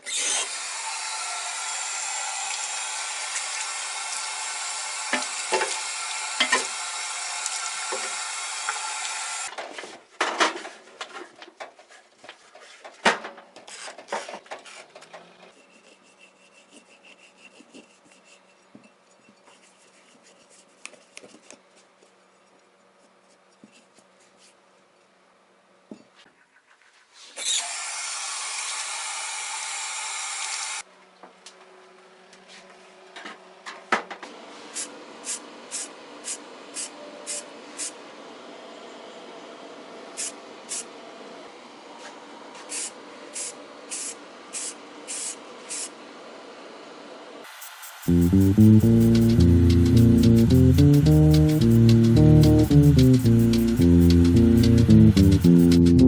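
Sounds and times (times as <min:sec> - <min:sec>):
small electric power tool running: 0:00.0 - 0:09.5.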